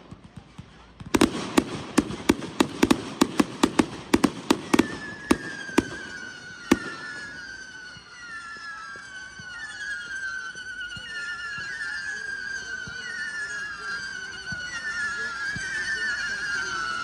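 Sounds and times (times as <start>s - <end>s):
fireworks banging: 1.1s - 7.9s
fireworks whistling: 1.1s - 9.2s.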